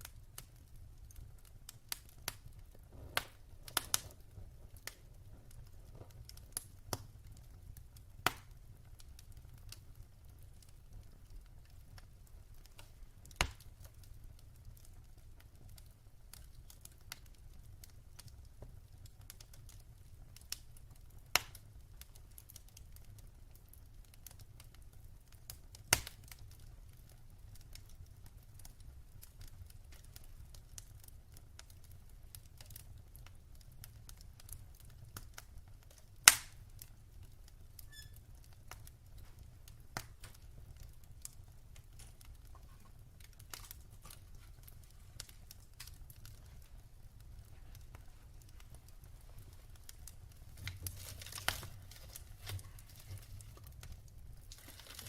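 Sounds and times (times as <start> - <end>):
wood fire crackling: 0.0 - 55.0
loud sharp pops: 36.3 - 36.6.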